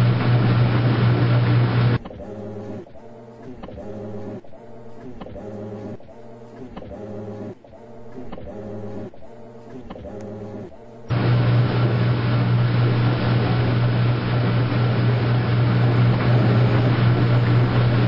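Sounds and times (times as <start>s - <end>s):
washing machine humming and rushing: 0.0s - 3.0s, 10.0s - 18.0s.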